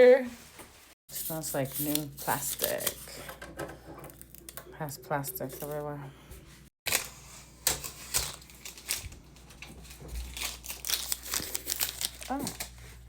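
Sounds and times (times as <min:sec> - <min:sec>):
plastic film peeling and crinkling: 0:06.9 - 0:13.0.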